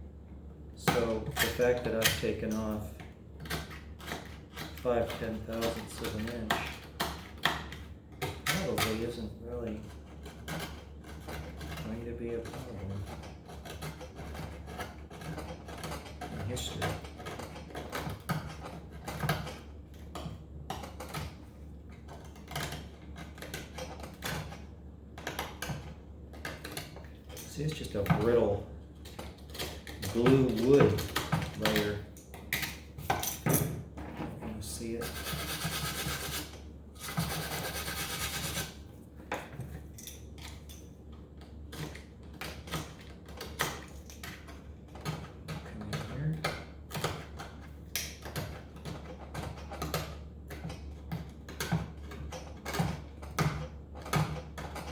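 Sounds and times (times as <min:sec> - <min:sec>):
blade scraping glue off wood: 0:34.8 - 0:38.8.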